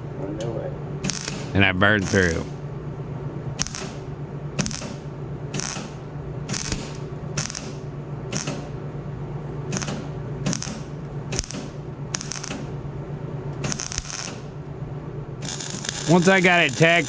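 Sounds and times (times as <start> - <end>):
welding arc crackle: 1.0 - 1.5, 3.6 - 4.0, 4.6 - 5.0, 5.6 - 7.8, 8.4 - 8.6, 9.7 - 12.7, 13.6 - 14.5, 15.4 - 17.0.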